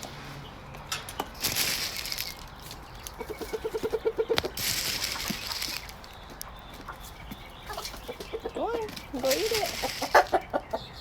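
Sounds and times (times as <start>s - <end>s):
chickens rustling and scratching: 0.0s - 10.8s
hen clucking: 3.1s - 11.0s.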